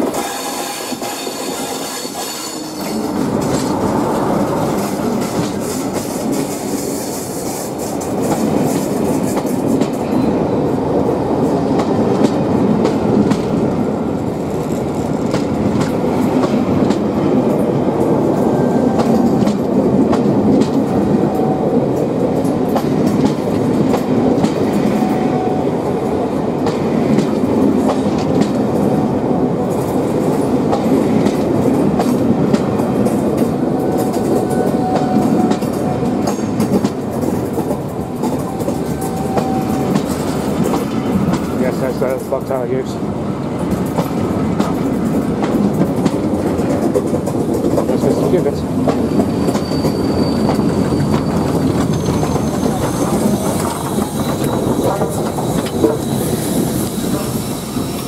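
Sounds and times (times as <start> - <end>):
train coaches rumbling past: 0.0 - 58.0
wheels clicking over rail joints: 29.7 - 57.2.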